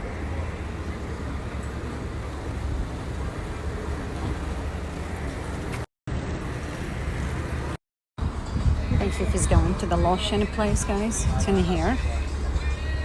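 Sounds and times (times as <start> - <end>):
car road rumble from inside: 7.2 - 13.0.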